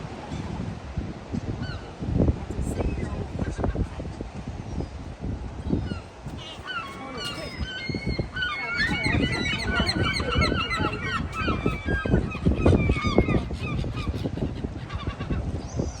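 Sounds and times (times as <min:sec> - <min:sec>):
flock of birds calling: 0:05.7 - 0:16.0.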